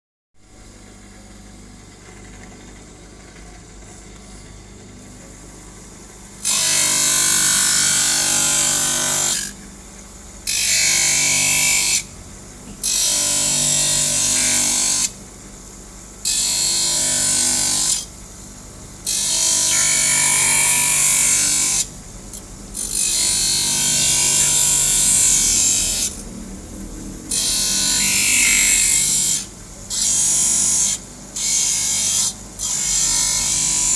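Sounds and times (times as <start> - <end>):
steady hum: 0.4 - 10.5, 17.4 - 33.9.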